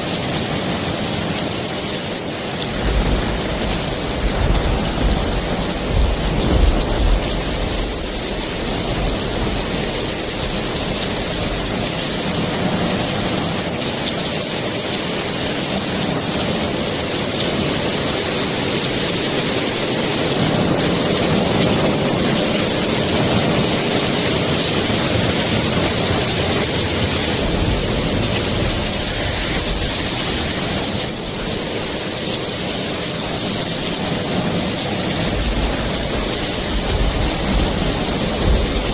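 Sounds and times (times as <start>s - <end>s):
heavy rain: 0.0s - 38.9s
distant thunder rumbles: 2.7s - 13.3s, 16.7s - 32.1s, 35.0s - 38.9s.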